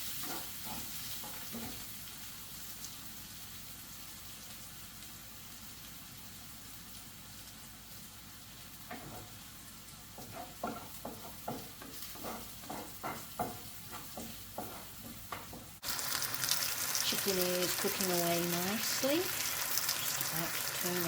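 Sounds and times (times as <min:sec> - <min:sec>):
chicken sizzling in a pan: 0:00.0 - 0:21.0
utensil knocking and scraping pan: 0:00.2 - 0:01.8, 0:10.2 - 0:15.8.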